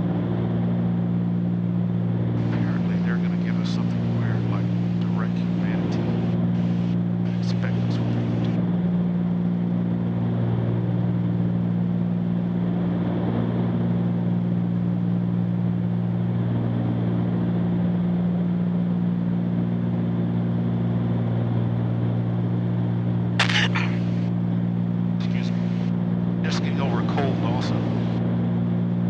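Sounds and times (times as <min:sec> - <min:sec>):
aircraft piston engines droning: 0:00.0 - 0:29.0
sharp burst of sound: 0:23.4 - 0:24.2.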